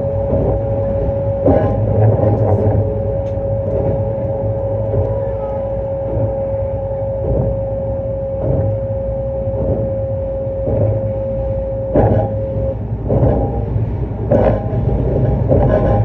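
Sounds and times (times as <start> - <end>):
steady tone: 0.0 - 16.0
steady train rumble: 0.0 - 16.0
train wheels clattering over joints: 11.9 - 16.0.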